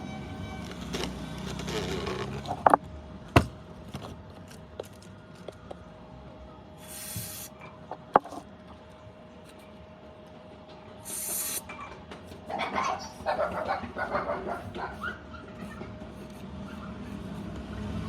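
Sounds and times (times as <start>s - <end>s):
short hiss: 11.1s - 11.6s.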